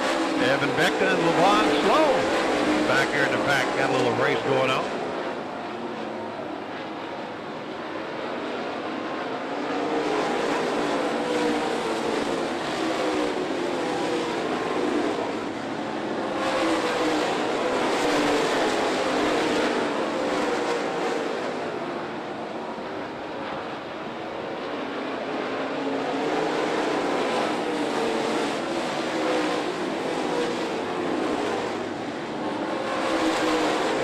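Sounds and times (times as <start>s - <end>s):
race car engines: 0.0s - 34.0s.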